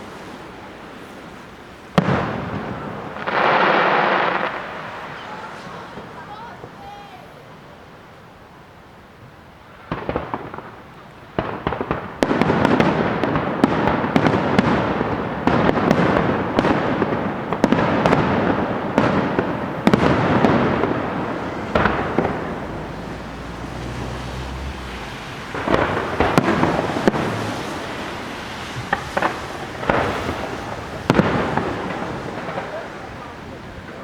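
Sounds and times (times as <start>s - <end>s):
firework shells bursting: 9.8s - 34.0s.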